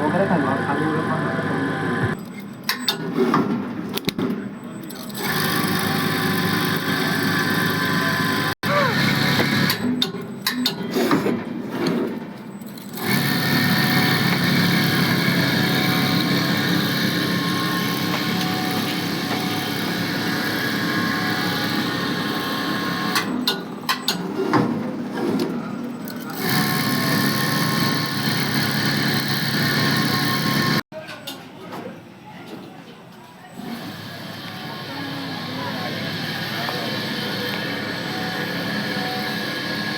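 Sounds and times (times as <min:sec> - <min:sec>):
winding machine motor whine: 0:00.0 - 0:02.2, 0:05.0 - 0:10.0, 0:12.6 - 0:23.5, 0:25.7 - 0:30.8, 0:33.7 - 0:39.9.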